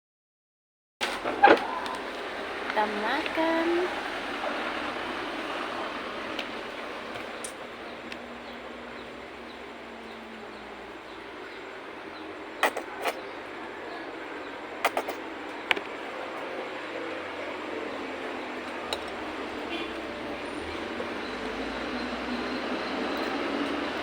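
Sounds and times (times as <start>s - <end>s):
rain hissing: 1.1s - 12.5s.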